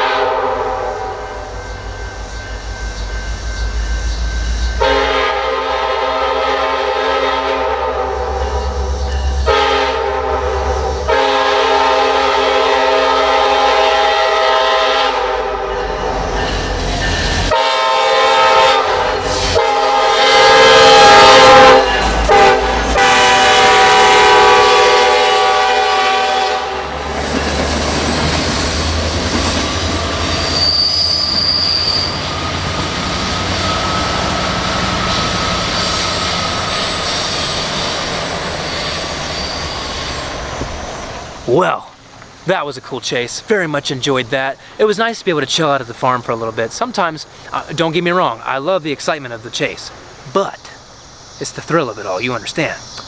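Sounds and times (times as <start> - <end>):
locomotive air horn blasts: 0.0 - 1.6, 4.8 - 8.6, 9.4 - 16.5, 17.1 - 27.0
train wheels clicking over rail joints: 26.8 - 41.5.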